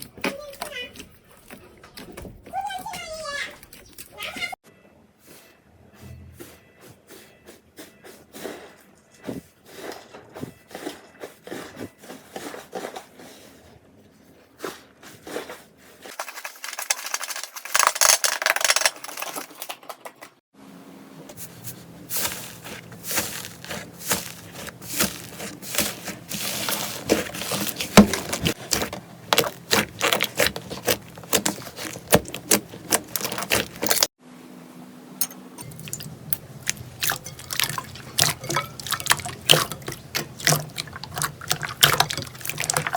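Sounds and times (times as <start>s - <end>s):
slime squelching and popping: 22.2s - 34.1s, 35.6s - 42.9s.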